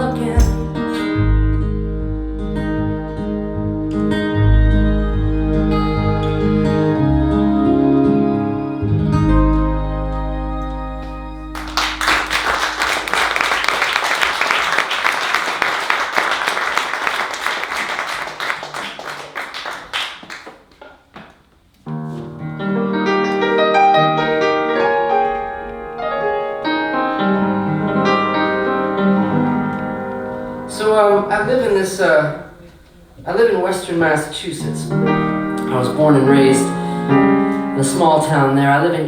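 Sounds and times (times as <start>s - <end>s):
gentle piano playing: 0.0s - 12.8s, 22.3s - 32.7s, 34.6s - 39.0s
audience applause: 11.5s - 20.9s.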